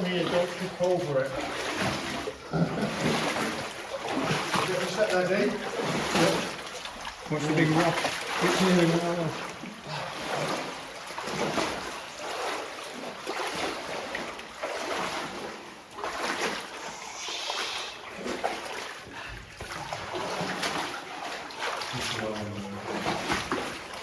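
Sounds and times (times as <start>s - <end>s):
people splashing through water: 0.0s - 24.0s.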